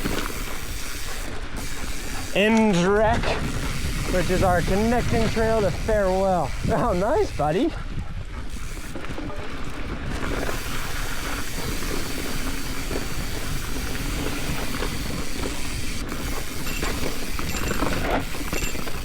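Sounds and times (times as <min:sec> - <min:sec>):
bike rattling clicks: 0:00.0 - 0:07.5, 0:08.2 - 0:19.0
bike tyres on dirt: 0:00.0 - 0:19.0
wind rushing: 0:03.0 - 0:08.6.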